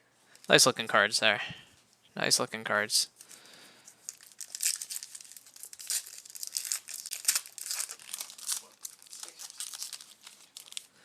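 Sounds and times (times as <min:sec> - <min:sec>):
foil wrappers crinkling: 0:03.2 - 0:10.9.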